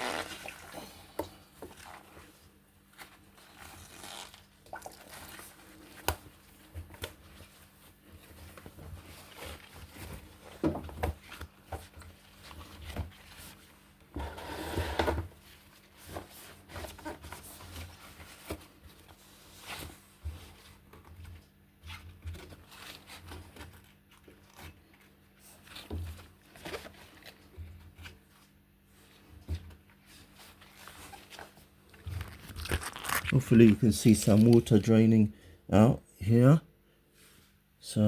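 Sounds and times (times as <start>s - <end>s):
rustling scrape: 11.2s - 34.9s, 37.1s - 37.6s.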